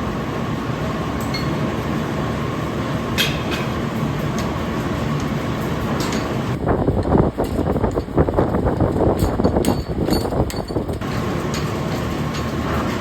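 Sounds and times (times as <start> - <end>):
factory machinery hum: 0.0 - 13.0
light metal clinks: 9.2 - 12.6.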